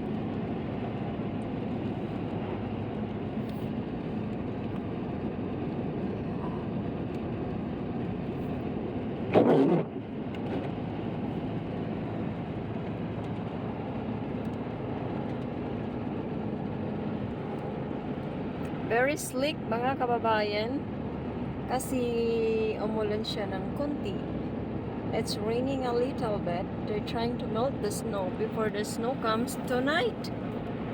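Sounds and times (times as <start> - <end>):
car driving on wet road: 0.1 - 19.0.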